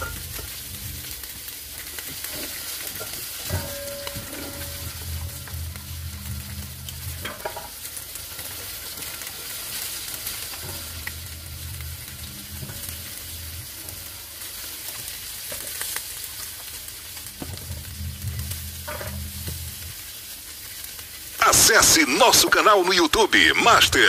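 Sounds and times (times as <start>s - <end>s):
low hum: 0.0s - 1.2s, 3.5s - 7.4s, 10.6s - 14.4s, 17.3s - 20.0s
fish sizzling in wok: 0.0s - 22.1s.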